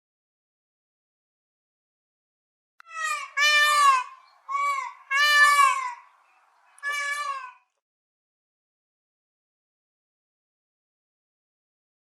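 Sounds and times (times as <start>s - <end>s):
bird calling drawn-out cries: 2.8s - 7.8s.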